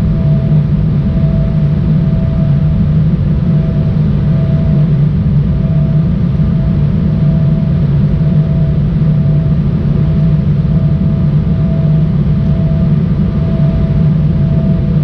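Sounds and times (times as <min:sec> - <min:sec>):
even hum: 0:00.0 - 0:15.0
jet engine rumble in cabin: 0:00.0 - 0:15.0.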